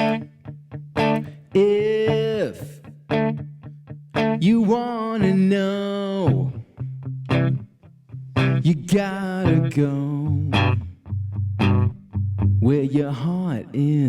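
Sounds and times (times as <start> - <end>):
electric guitar chord stabs: 0.0 - 1.5
bending guitar melody notes: 0.0 - 12.9.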